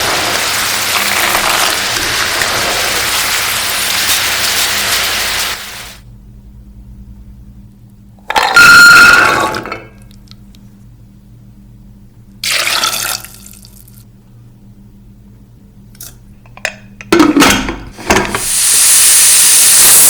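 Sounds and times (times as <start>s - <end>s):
food deep-frying in oil: 0.0s - 6.0s, 18.4s - 20.0s.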